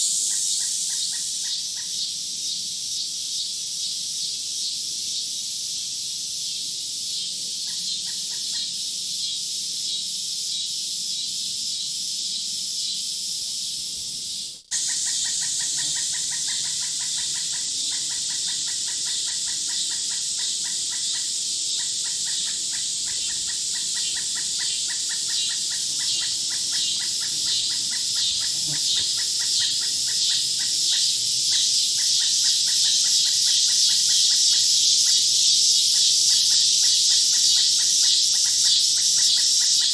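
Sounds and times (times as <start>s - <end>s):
insects chorus: 0.0s - 39.9s
birds calling: 14.8s - 34.0s.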